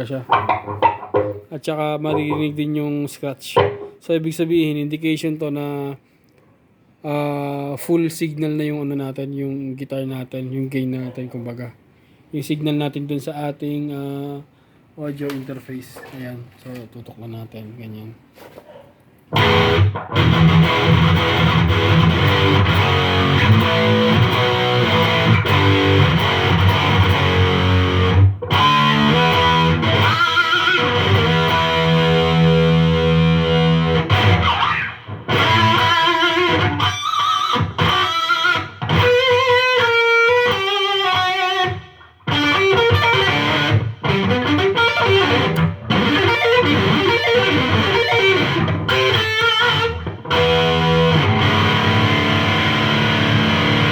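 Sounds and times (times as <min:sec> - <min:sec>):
distorted electric guitar: 0:00.0 - 0:01.5, 0:02.1 - 0:02.6, 0:03.6 - 0:04.0, 0:19.3 - 0:53.9.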